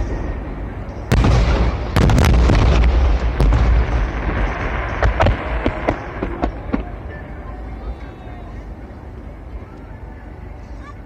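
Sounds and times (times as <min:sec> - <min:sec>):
crackling fireworks: 0:00.0 - 0:09.2
low rumble of booms: 0:01.1 - 0:07.1
fireworks bangs: 0:01.1 - 0:07.5.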